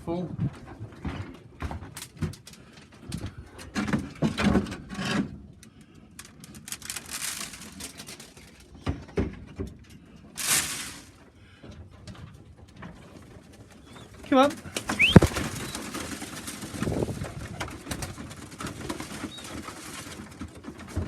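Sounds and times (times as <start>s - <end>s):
pigeons rustling: 14.8s - 16.1s
pigeons pecking grain: 14.8s - 16.6s.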